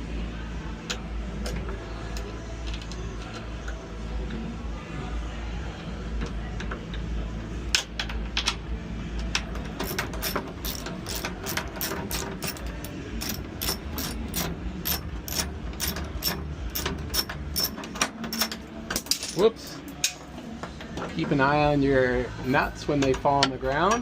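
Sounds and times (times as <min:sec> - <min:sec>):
ratchet wrench clicking: 0:09.3 - 0:19.2.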